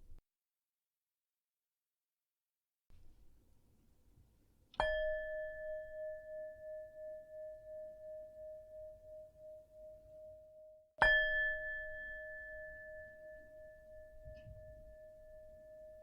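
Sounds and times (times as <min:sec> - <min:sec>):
meditation bell ringing: 0:04.8 - 0:16.0.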